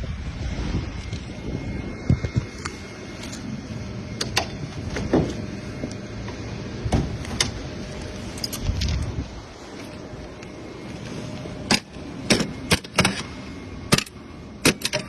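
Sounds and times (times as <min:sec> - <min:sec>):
low steady rumble: 0:00.0 - 0:15.0
metallic clicks and clanks: 0:13.9 - 0:15.0.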